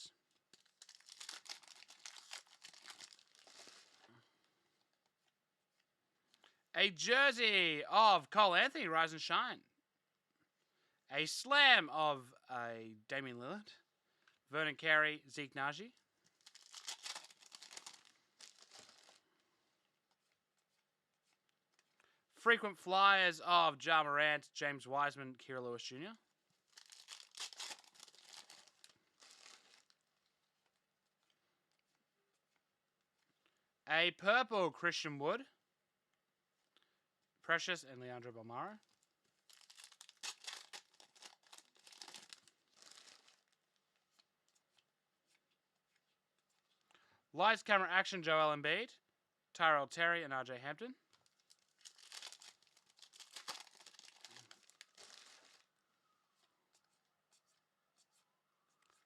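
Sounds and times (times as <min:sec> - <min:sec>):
wrapper crinkling and tearing: 0:00.0 - 0:04.2, 0:16.2 - 0:19.3, 0:26.6 - 0:30.1, 0:38.8 - 0:44.8, 0:51.1 - 0:55.7.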